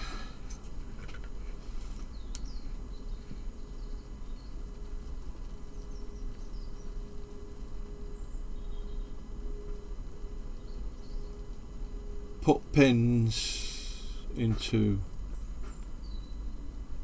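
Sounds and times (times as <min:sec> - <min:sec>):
low background hum: 0:00.0 - 0:17.0
faint steady tone: 0:05.7 - 0:17.0.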